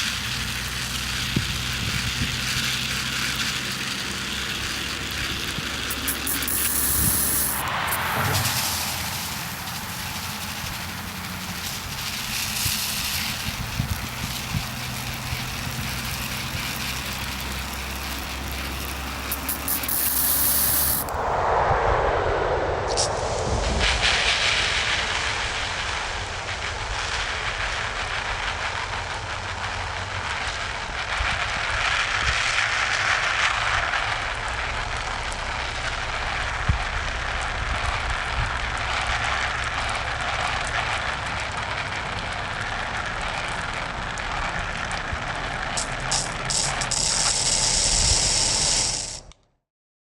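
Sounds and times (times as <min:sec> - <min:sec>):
pepper spray hissing: 0:00.0 - 0:21.3, 0:45.8 - 0:49.2
low rumble: 0:05.2 - 0:15.9, 0:17.0 - 0:28.3.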